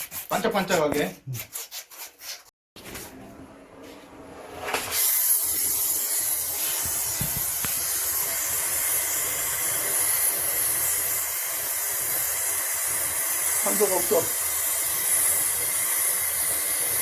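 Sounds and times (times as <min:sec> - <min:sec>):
brazing torch lighting: 0:04.5 - 0:17.0
torch flame hissing: 0:04.6 - 0:17.0.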